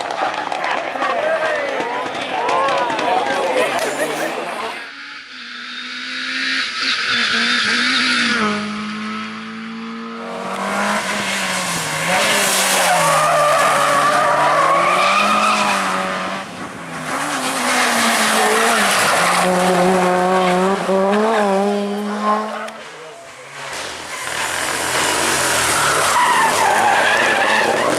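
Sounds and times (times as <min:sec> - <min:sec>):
rally car engines revving: 0:00.0 - 0:27.9
tyres skidding: 0:06.7 - 0:27.9.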